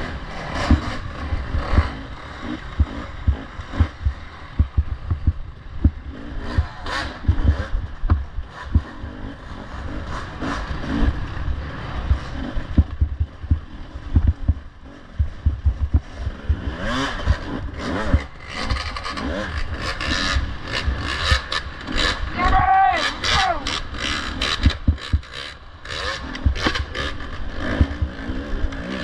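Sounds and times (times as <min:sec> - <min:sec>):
dirt bike engine revving: 0:00.0 - 0:29.0
heavy low thumps: 0:00.6 - 0:02.0, 0:02.7 - 0:08.9, 0:12.0 - 0:18.4, 0:24.6 - 0:25.3, 0:27.8 - 0:28.1.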